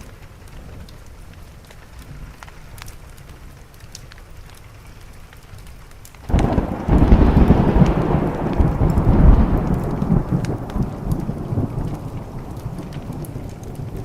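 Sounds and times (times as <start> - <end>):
faint crackles: 0.0 - 14.0
steady rain: 0.0 - 14.0
thunderclap and rumble: 6.3 - 14.0.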